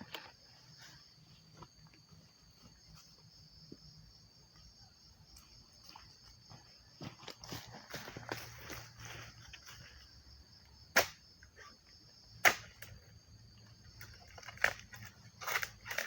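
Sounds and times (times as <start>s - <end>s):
high insect drone: 0.0s - 16.0s
tool chopping into tree: 10.9s - 11.2s, 12.4s - 13.0s.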